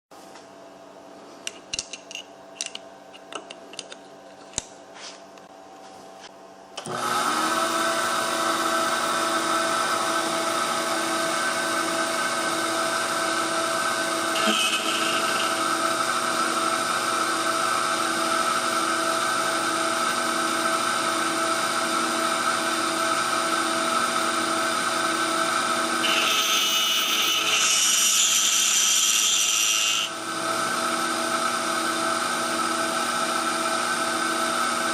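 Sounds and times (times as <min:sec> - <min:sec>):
cnc spindle whine: 0:09.0 - 0:18.5, 0:24.0 - 0:31.0
cutter hissing into wood: 0:14.4 - 0:15.7, 0:26.0 - 0:30.2.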